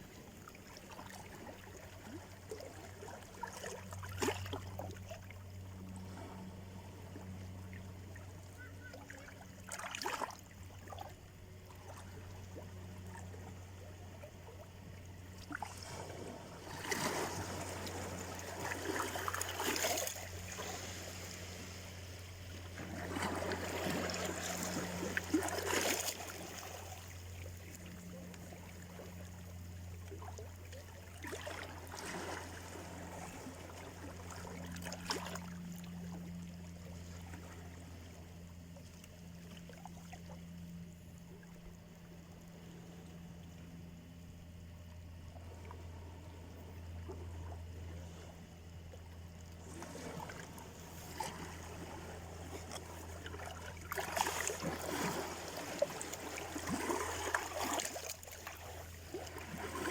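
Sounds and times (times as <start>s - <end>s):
steady low hum: 0.0s - 59.9s
small waves washing onto shore: 15.2s - 29.5s, 49.6s - 59.9s.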